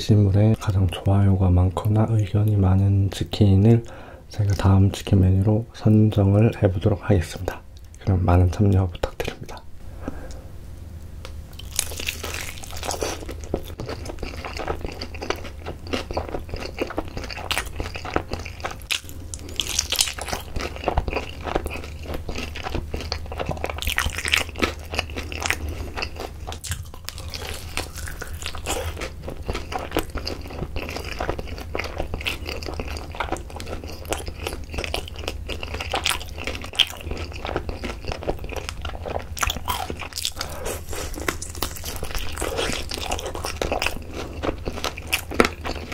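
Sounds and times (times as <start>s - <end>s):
steady low hum: 0.0s - 45.9s
crunchy chicken chewing: 11.5s - 45.9s.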